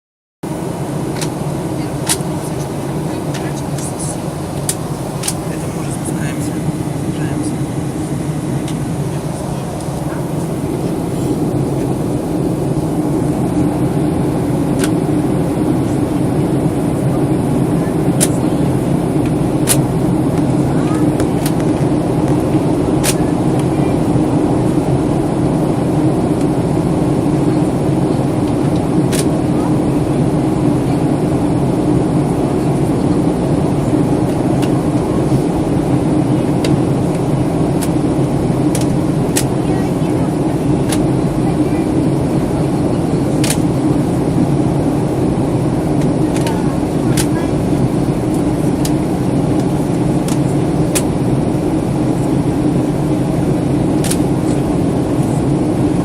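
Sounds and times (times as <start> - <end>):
jet engine drone and airflow: 0.4 - 56.0
constant low hum: 0.5 - 56.0.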